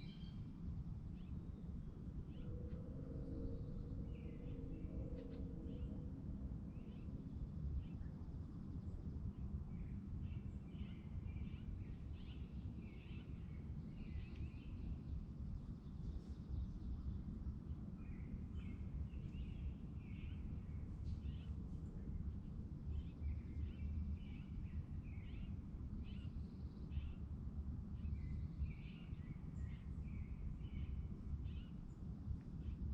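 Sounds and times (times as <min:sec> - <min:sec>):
low rumble: 0:01.6 - 0:08.0.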